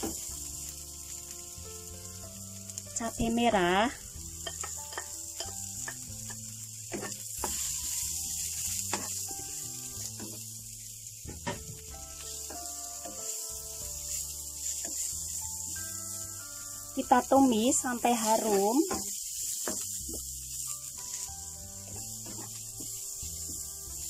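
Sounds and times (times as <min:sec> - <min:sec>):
soft background music: 0:00.0 - 0:24.0
vegetables sizzling in oil: 0:00.0 - 0:24.0
spatula scraping and knocking pan: 0:04.4 - 0:10.6, 0:11.3 - 0:15.8, 0:18.2 - 0:24.0.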